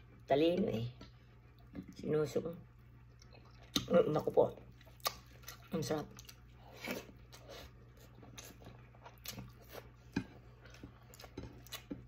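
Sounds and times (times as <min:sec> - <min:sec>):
person chewing food: 0:02.9 - 0:12.0
mouth smacks and clicks: 0:05.0 - 0:05.3.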